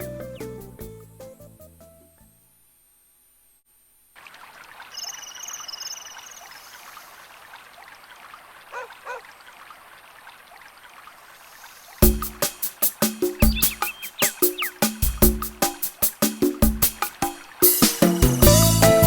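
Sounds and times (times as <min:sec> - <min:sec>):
music: 0:00.0 - 0:02.6, 0:12.0 - 0:19.0
river water flowing: 0:04.2 - 0:12.0
short low bird chirps: 0:04.9 - 0:06.8, 0:13.4 - 0:14.9
bird trilling: 0:04.9 - 0:06.9, 0:08.7 - 0:09.2, 0:13.2 - 0:15.4.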